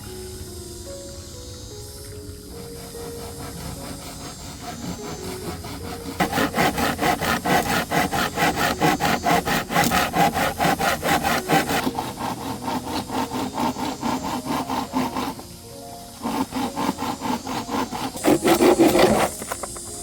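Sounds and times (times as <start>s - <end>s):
handsaw cutting wood: 2.0s - 20.0s.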